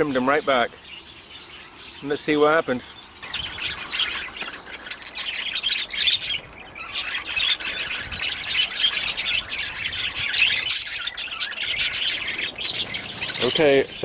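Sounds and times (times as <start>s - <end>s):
budgerigars chattering: 0.0s - 14.0s.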